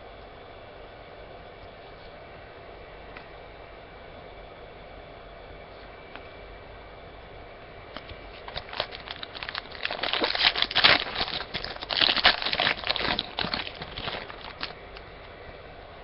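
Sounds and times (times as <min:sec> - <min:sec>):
wrapper crinkling and tearing: 0:08.4 - 0:14.8.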